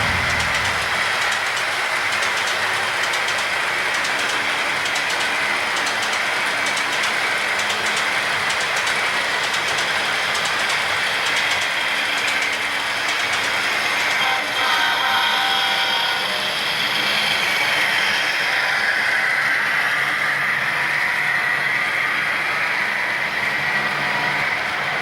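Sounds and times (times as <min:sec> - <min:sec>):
quick regular track clicks: 0:00.0 - 0:14.2
model train wheels rolling on rail: 0:00.0 - 0:25.0.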